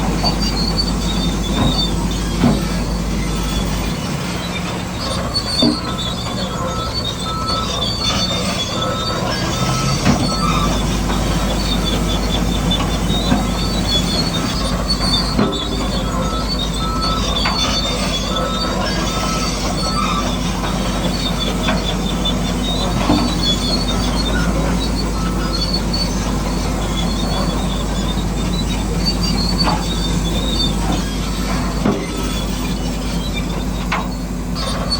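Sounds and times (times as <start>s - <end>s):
bulldozer diesel engine drone: 0.0s - 34.9s
steel tracks squealing and clanking: 0.0s - 34.9s.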